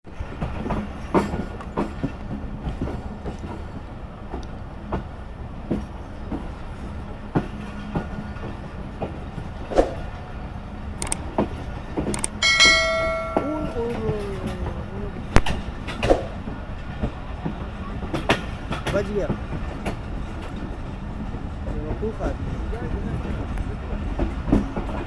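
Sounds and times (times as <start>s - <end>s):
train rumbling on track: 0.0s - 25.0s
wheels clacking over rails: 11.0s - 23.4s.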